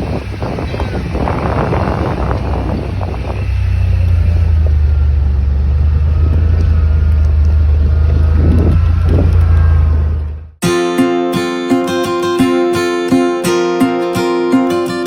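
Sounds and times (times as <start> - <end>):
engine running: 0.0 - 10.6.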